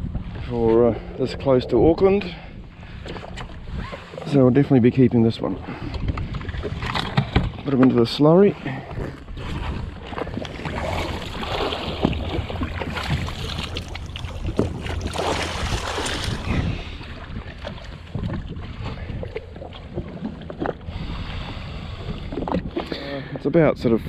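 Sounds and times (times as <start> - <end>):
wind buffeting microphone: 0.0 - 24.0
knocks and water splashes: 5.5 - 23.2.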